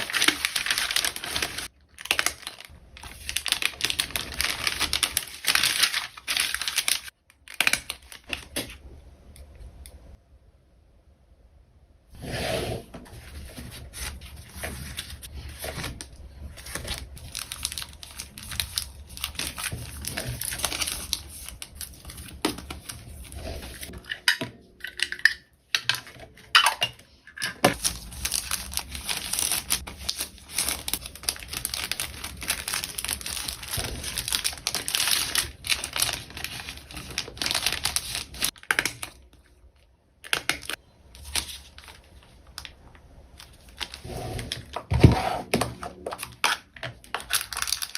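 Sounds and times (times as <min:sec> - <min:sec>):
plastic wrapping crinkling: 0:00.0 - 0:08.7, 0:13.3 - 0:23.9, 0:27.7 - 0:39.5, 0:40.2 - 0:44.8, 0:46.0 - 0:47.9.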